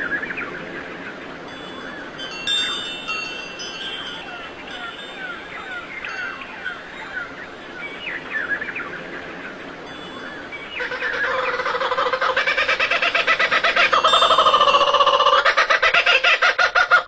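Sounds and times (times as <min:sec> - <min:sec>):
small birds chirping: 0:00.0 - 0:15.4
fowl call with fast pulsing: 0:10.8 - 0:17.0.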